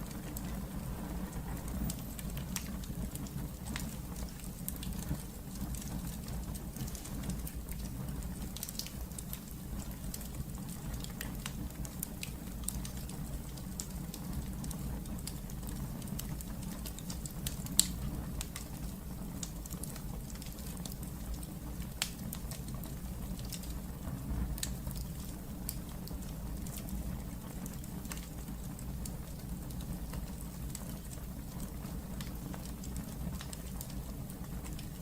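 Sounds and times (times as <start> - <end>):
low rumble of burning fire: 0.0 - 35.0
wood fire crackling and popping: 0.0 - 35.0.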